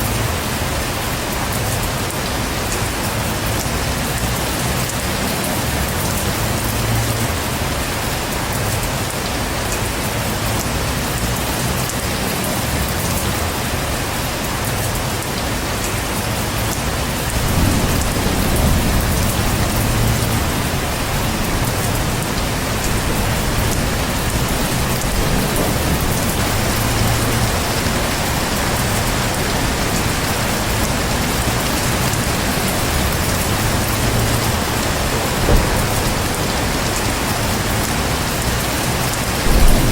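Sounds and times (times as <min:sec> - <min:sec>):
heavy rain falling: 0:00.0 - 0:39.9
low rolling thunder: 0:16.9 - 0:39.9.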